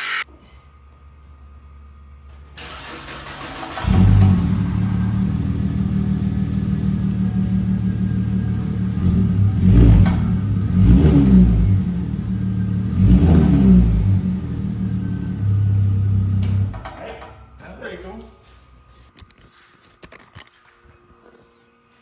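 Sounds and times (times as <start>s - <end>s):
loud car engine idling and revving: 2.8s - 17.6s.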